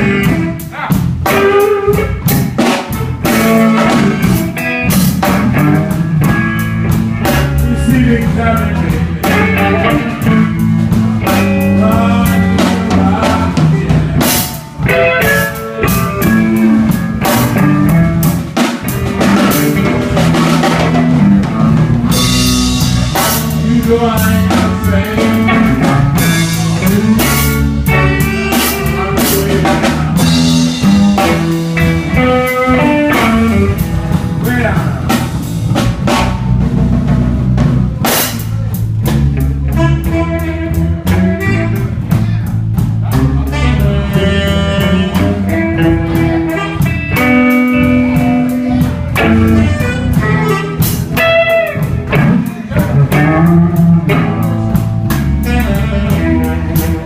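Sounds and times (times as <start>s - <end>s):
bass guitar: 0.0s - 57.0s
drum kit with rimshots: 0.0s - 57.0s
electric guitar lines: 0.0s - 57.0s.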